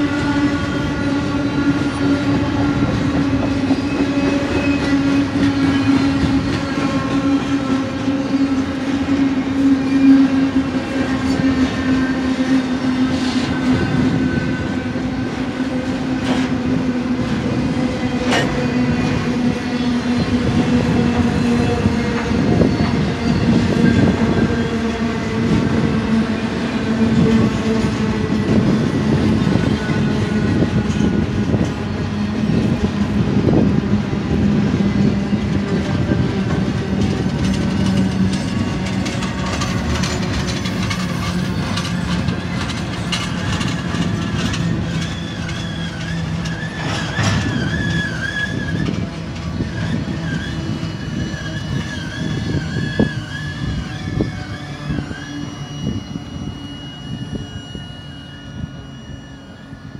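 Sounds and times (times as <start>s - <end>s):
freight train wheels on rail: 0.0s - 59.9s.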